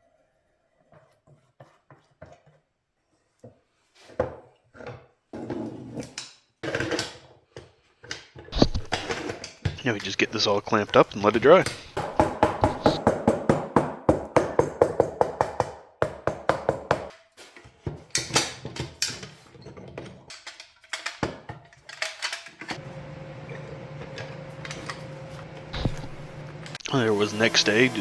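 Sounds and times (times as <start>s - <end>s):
steady hum: 9.8s - 13.0s, 22.8s - 28.0s
knocks on wood: 11.6s - 17.1s, 25.8s - 26.4s.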